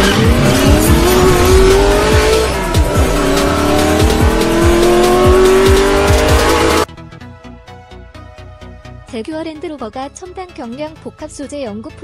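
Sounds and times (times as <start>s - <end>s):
music with thumping beat: 0.0s - 6.9s
race car engine revving: 0.0s - 6.9s.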